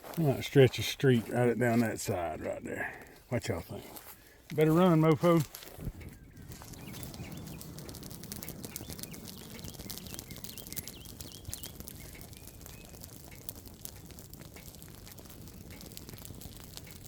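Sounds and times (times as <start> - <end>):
grass fire crackling and popping: 0.0 - 17.0
low rushing fire noise: 0.0 - 17.0
bird chirping: 5.9 - 14.3.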